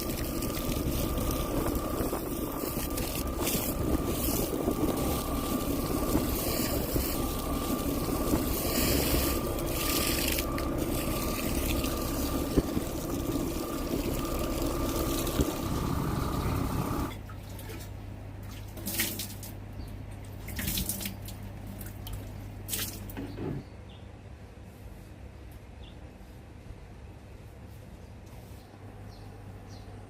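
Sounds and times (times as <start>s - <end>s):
water rushing: 0.0s - 17.1s
boat motor running: 0.0s - 17.2s
low hum: 0.0s - 18.4s
water dripping and splashing: 0.0s - 23.2s.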